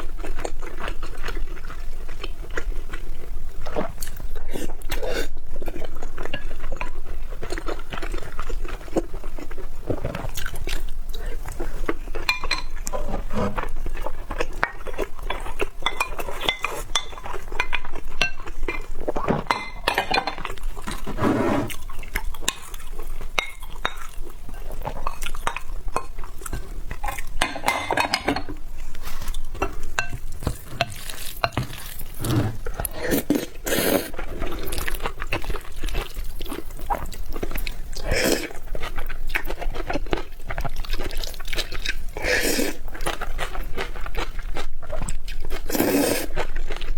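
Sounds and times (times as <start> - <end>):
utensils clinking against bowl: 12.2 - 13.6, 19.4 - 20.5, 27.0 - 28.6.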